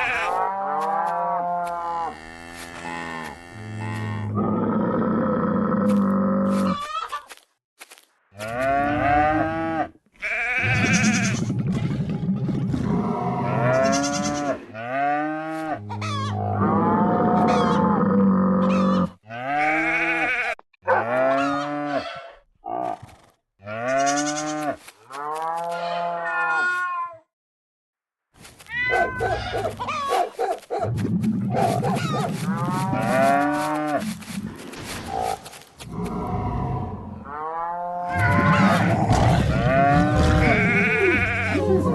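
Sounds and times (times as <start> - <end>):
cattle mooing: 35.9 - 41.9.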